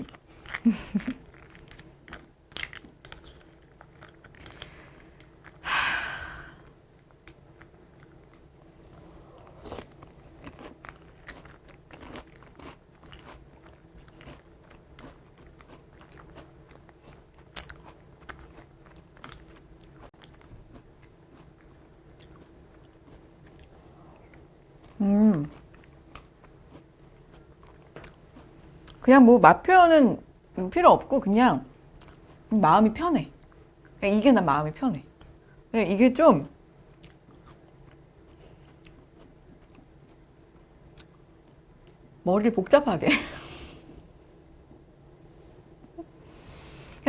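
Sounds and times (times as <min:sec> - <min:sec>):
person chewing crunchy cereal: 0:00.0 - 0:05.6, 0:06.6 - 0:29.0, 0:37.0 - 0:40.2.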